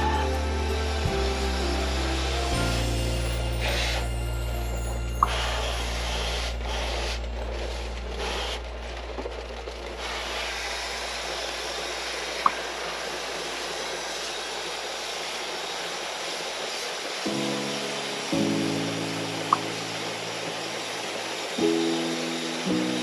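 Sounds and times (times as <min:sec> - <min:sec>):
low motor hum: 0:00.0 - 0:16.7
water spray hiss: 0:00.0 - 0:23.0.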